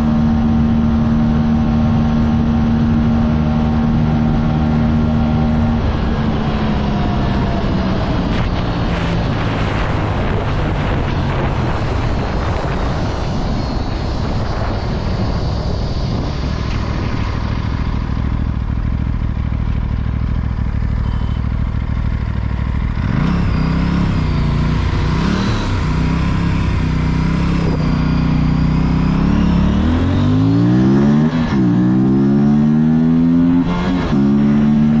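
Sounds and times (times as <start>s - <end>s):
wind rush: 0.0s - 18.6s, 24.1s - 28.5s
motorcycle engine at speed: 0.0s - 35.0s.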